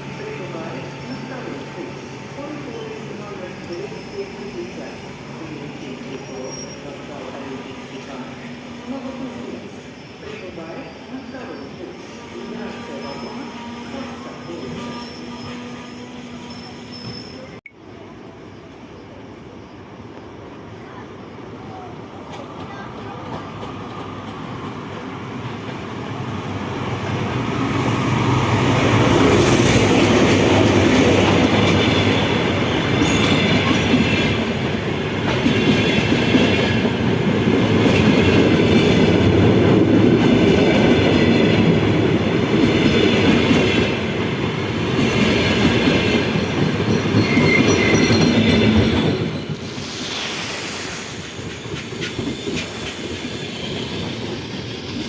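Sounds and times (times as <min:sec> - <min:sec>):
faint high wheel squeal: 0:05.8 - 0:17.6, 0:47.2 - 0:55.0.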